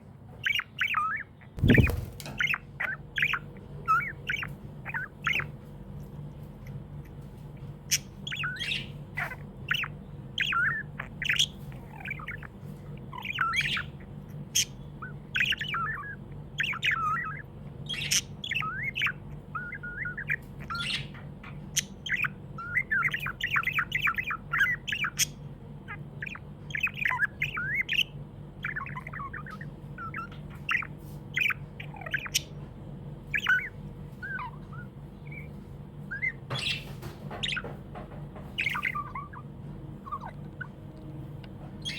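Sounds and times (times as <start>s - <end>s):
budgerigar chirping and squawking: 0.3s - 41.9s
low hum: 1.5s - 2.6s.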